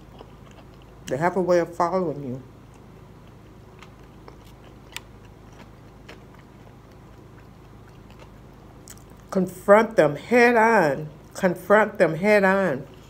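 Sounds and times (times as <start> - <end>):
person chewing crispy food: 0.0 - 1.1, 2.6 - 9.3.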